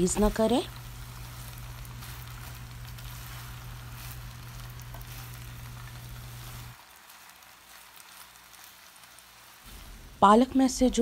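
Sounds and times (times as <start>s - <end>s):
steady low hum: 0.0s - 6.8s
leaves sizzling in hot oil: 0.0s - 11.0s
spatula turning food in pan: 0.0s - 11.0s.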